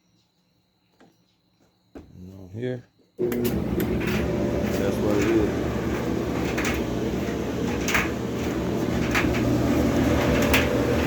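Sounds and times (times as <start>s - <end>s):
clothes dryer running: 3.2s - 11.0s.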